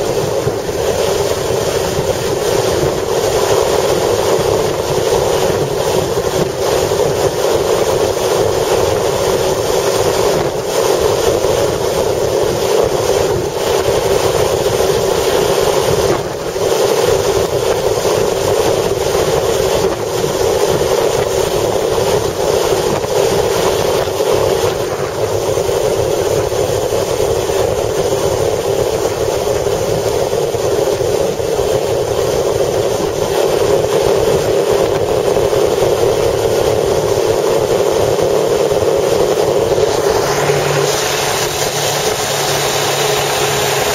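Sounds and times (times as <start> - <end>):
wind buffeting microphone: 0.0 - 43.9
vehicle moving: 38.7 - 43.9.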